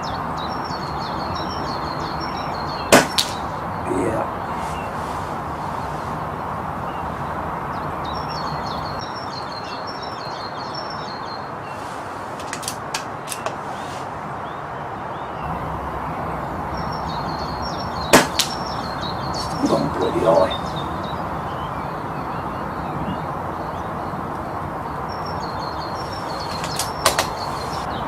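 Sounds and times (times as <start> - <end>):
birds chirping: 0.0 - 28.0
steady outdoor hiss: 0.0 - 28.0
air rifle firing: 2.9 - 3.4, 18.2 - 18.6.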